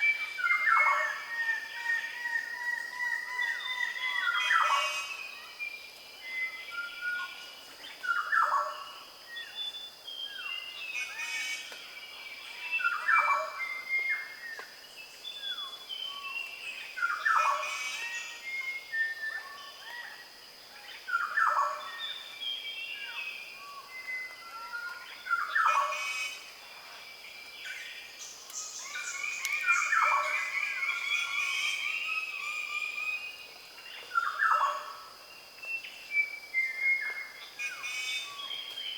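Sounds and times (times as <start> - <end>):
birds chirping and whistling: 27.6 - 34.9, 35.6 - 38.9.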